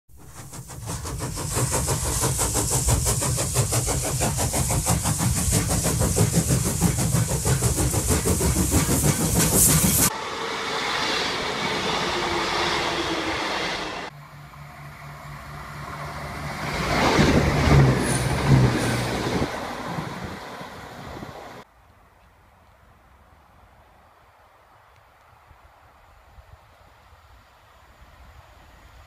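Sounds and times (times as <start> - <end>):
train wheels clattering: 0.1 - 10.1
diesel train running hum: 0.1 - 21.7.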